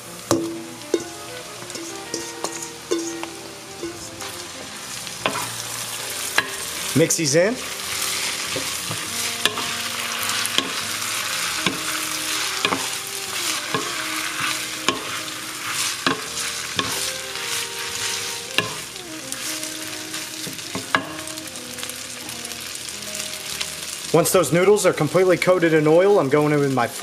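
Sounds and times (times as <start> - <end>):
noodles sizzling in hot oil: 0.0 - 27.0
wooden spoon knocking on pan: 0.3 - 3.4, 8.6 - 9.8, 14.9 - 15.2, 16.1 - 17.1, 20.5 - 21.2.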